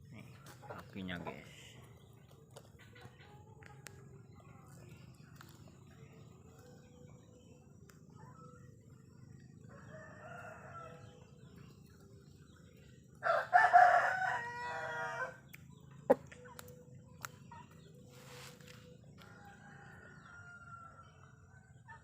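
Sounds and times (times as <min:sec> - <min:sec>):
rooster crowing: 0:09.7 - 0:11.2, 0:13.2 - 0:15.4, 0:19.2 - 0:21.2
faint rooster call: 0:13.2 - 0:15.4.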